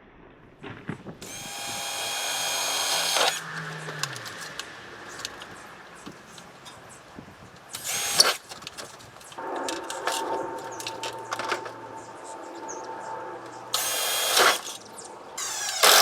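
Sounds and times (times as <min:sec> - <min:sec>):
power drill running: 0:01.2 - 0:06.7, 0:07.7 - 0:11.8, 0:13.7 - 0:16.0.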